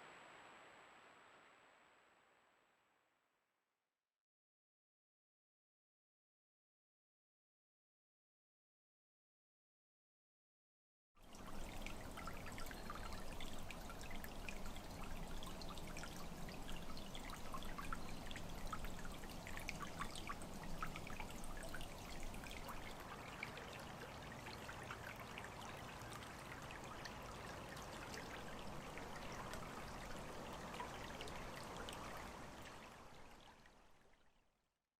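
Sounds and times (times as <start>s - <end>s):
water trickling and splashing: 11.2s - 34.4s.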